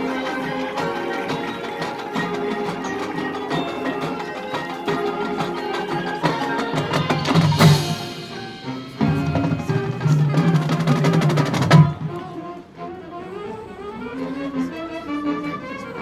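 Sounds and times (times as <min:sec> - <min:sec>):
brass and winds chords: 0:00.0 - 0:16.0
snare and bass drum: 0:06.2 - 0:12.2.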